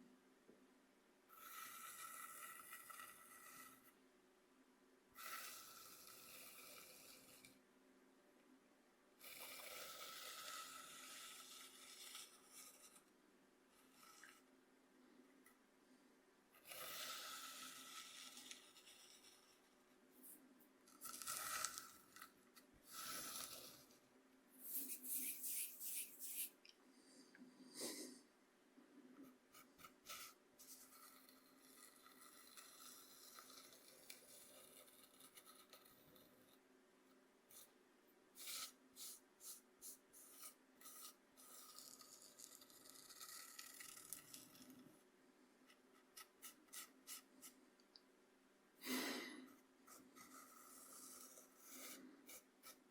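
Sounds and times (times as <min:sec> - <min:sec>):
cornmeal scraped across cutting board: 0:24.6 - 0:26.6.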